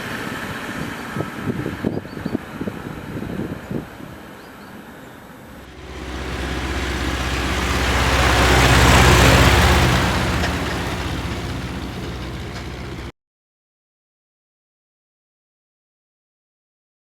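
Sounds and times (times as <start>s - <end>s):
vehicle engine passing by: 5.5s - 13.1s.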